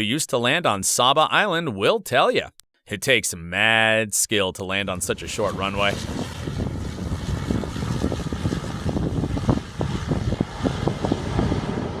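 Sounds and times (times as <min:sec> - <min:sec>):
aircraft rumble: 0:04.7 - 0:12.0
wind buffeting microphone: 0:05.0 - 0:12.0.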